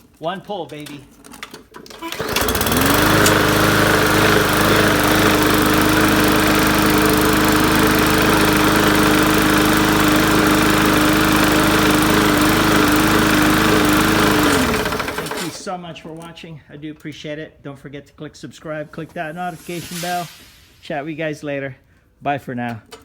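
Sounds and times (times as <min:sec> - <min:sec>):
push mower engine running: 0:01.9 - 0:15.8.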